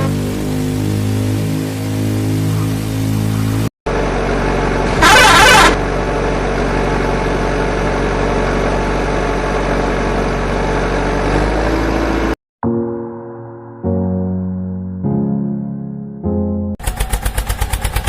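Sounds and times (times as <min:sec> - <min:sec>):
heavy vehicle engine running: 0:00.0 - 0:12.4, 0:16.8 - 0:18.0
loud blast: 0:05.0 - 0:05.8
music: 0:12.6 - 0:16.8.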